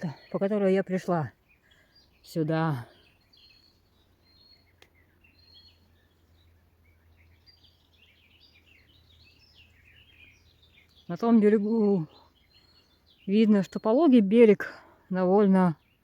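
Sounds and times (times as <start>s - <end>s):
birds chirping and whistling: 0.0s - 14.8s, 15.7s - 16.0s
faint click: 4.7s - 5.0s.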